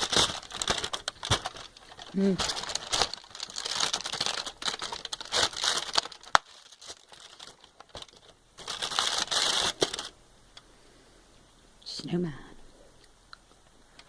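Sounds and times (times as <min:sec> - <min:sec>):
wrapper crinkling: 0:00.0 - 0:10.2.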